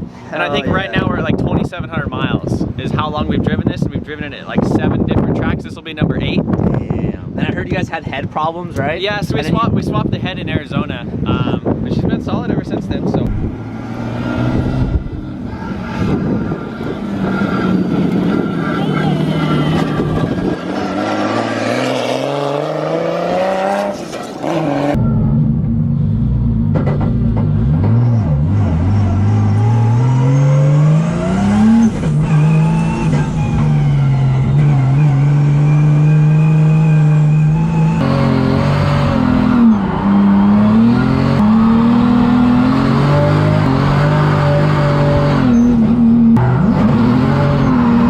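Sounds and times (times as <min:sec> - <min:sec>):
car engine revving: 0:12.6 - 0:48.0.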